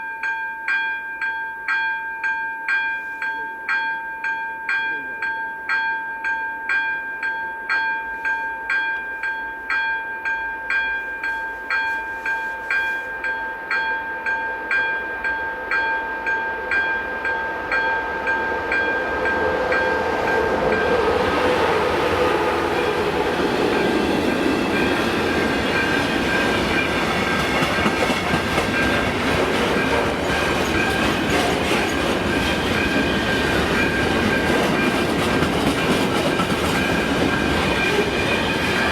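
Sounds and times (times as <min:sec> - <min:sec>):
level crossing warning bell ringing: 0:00.0 - 0:38.9
train passing with wheel clatter: 0:14.6 - 0:38.9.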